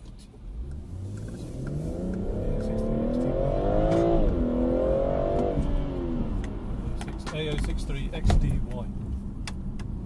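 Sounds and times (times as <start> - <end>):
car engine accelerating: 0.4 - 8.2.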